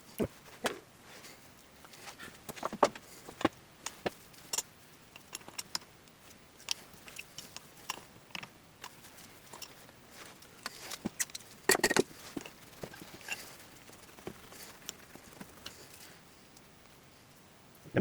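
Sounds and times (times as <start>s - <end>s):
metal parts and tools clicking: 3.3s - 5.9s, 6.6s - 9.8s, 10.6s - 14.3s.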